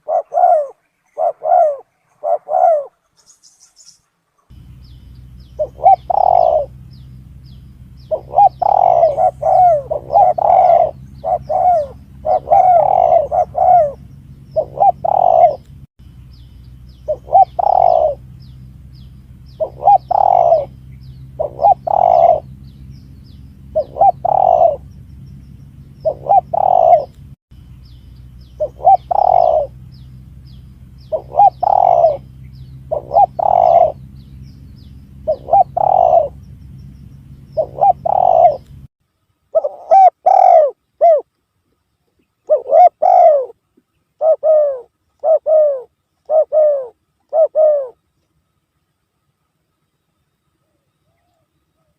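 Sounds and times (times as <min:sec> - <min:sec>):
dove cooing: 0:00.0 - 0:03.4, 0:04.5 - 0:15.7, 0:17.0 - 0:18.5, 0:19.3 - 0:22.8, 0:23.6 - 0:25.1, 0:25.9 - 0:27.2, 0:28.5 - 0:36.5, 0:37.4 - 0:38.8, 0:39.5 - 0:41.3, 0:42.4 - 0:43.6, 0:44.2 - 0:48.0
steady low hum: 0:00.0 - 0:51.9.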